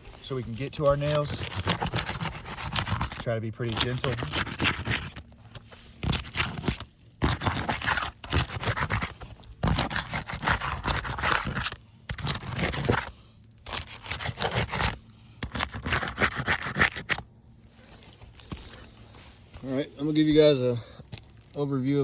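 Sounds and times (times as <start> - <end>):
roofing bar scraping shingles: 0.0 - 13.1.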